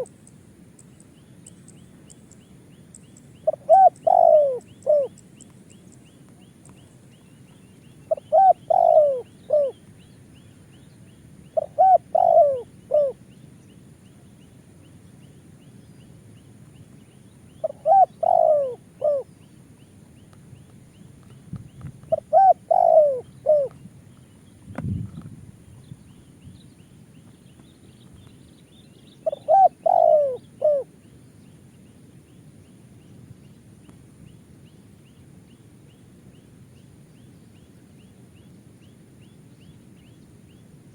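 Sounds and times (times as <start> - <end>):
dove cooing: 3.4 - 5.2, 8.1 - 9.8, 11.6 - 13.2, 17.6 - 19.3, 22.1 - 23.8, 29.2 - 31.0.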